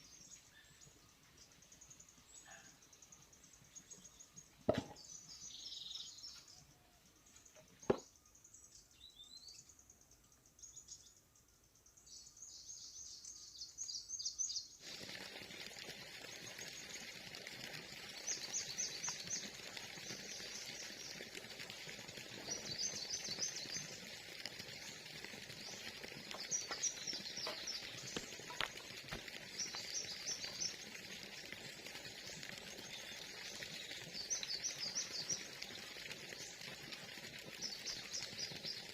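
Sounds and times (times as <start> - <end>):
small birds chirping: 0.0 - 14.9, 16.2 - 38.9
outdoor hiss: 13.8 - 21.4, 22.4 - 30.8.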